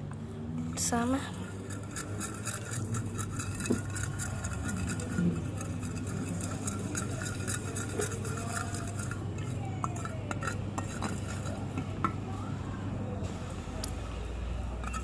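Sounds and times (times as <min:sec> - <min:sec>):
utensil scraping slime in bowl: 0:00.6 - 0:12.2, 0:14.8 - 0:15.0.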